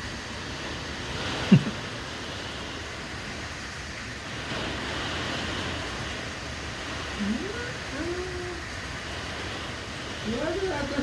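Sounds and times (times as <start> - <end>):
strong wind rushing: 0.0 - 11.0.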